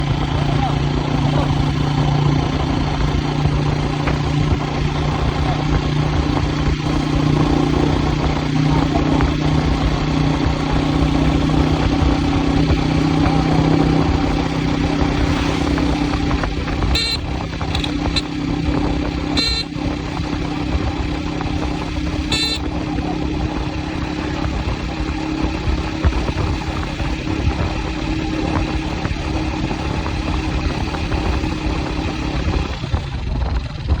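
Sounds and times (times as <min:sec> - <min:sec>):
vehicle engine running: 0:00.0 - 0:34.0
short horn beeps: 0:16.9 - 0:18.4, 0:19.3 - 0:19.8, 0:22.2 - 0:22.8.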